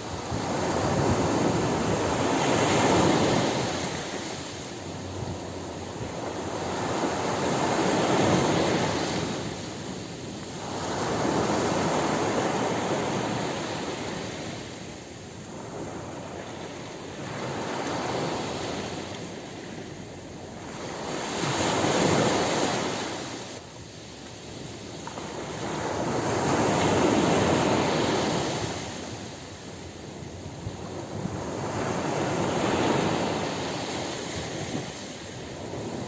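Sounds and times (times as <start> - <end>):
ocean surf breaking: 0.0 - 23.7.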